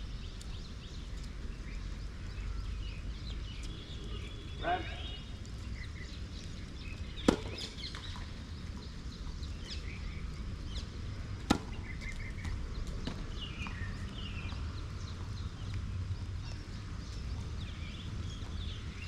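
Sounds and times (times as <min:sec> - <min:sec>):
background noise: 0:00.0 - 0:19.0
birds chirping: 0:00.0 - 0:19.0
tennis racket hitting ball: 0:07.2 - 0:07.8, 0:11.4 - 0:11.8.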